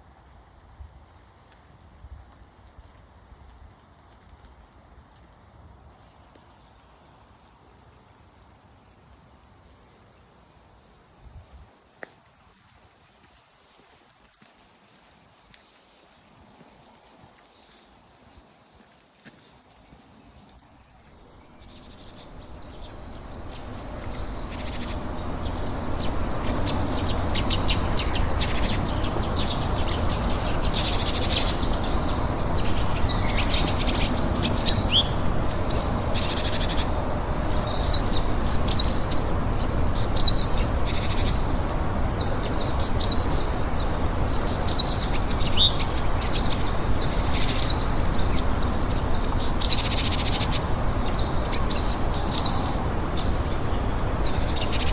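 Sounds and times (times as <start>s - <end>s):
steady background hiss: 5.6s - 54.9s
songbirds chirping and singing: 19.9s - 54.9s.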